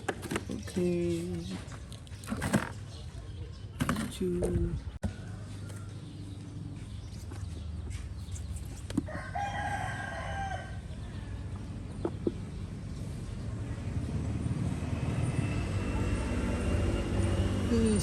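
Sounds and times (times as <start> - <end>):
rooster crowing: 9.1 - 11.4.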